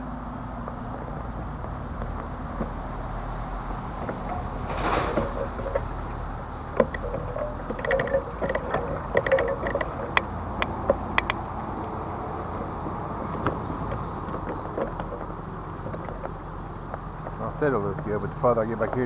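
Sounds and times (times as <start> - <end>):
water noise: 0.0 - 17.3
clicks and knocks from kayak hull: 3.9 - 17.4.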